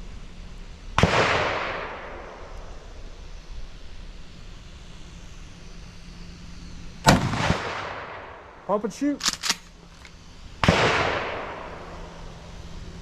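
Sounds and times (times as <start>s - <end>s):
shotgun blast with echo: 7.0s - 8.2s, 10.6s - 11.7s.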